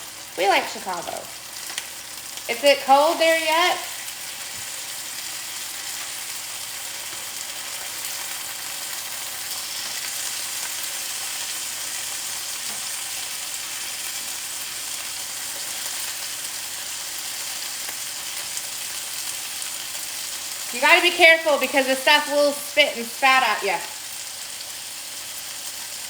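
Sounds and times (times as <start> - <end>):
chicken sizzling in oil: 0.0 - 26.0.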